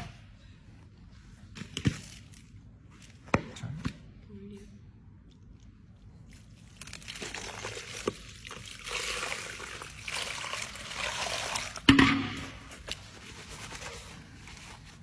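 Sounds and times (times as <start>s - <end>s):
liquid trickling and pouring: 6.1s - 14.0s.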